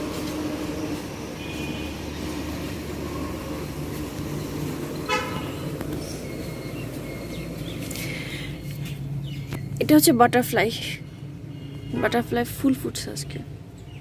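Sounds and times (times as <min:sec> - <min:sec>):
road traffic rumble: 0:00.0 - 0:14.0
vehicle horn toot: 0:01.4 - 0:02.2, 0:05.0 - 0:05.8, 0:11.5 - 0:12.3.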